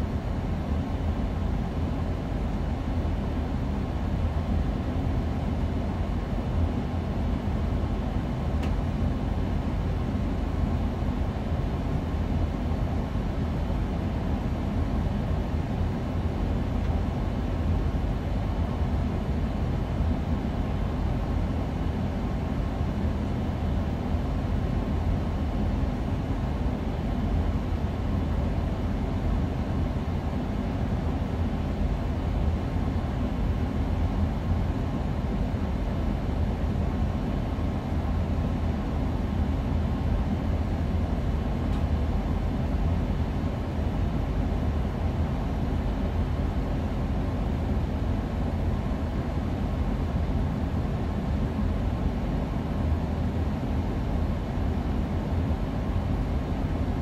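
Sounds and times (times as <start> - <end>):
train low hum: 0.0 - 57.0
faint click: 8.6 - 8.8.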